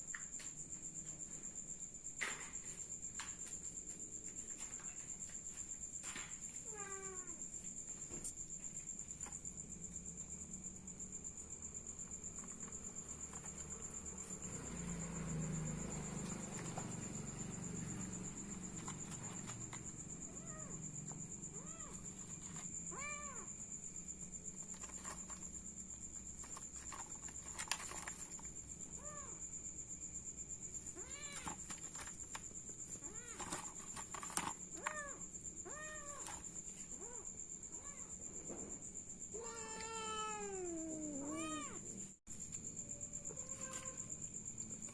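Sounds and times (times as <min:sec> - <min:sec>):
cat meowing: 0:06.6 - 0:07.4, 0:21.5 - 0:22.0, 0:22.9 - 0:23.5, 0:39.4 - 0:41.8.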